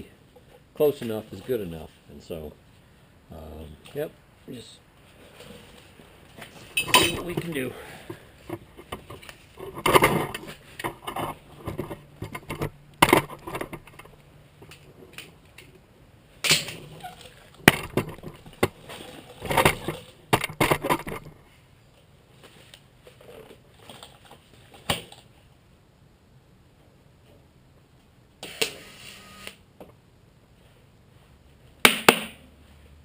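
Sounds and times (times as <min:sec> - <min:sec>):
metal clanks and knocks: 0:06.8 - 0:07.6.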